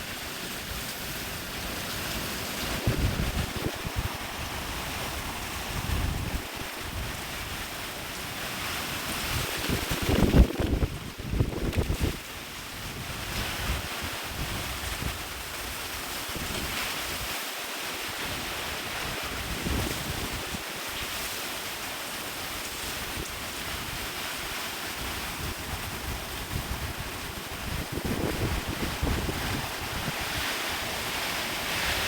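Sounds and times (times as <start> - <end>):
hurricane wind blowing: 0.0 - 32.0
wind buffeting microphone: 2.6 - 7.7, 9.1 - 12.2, 25.0 - 32.0.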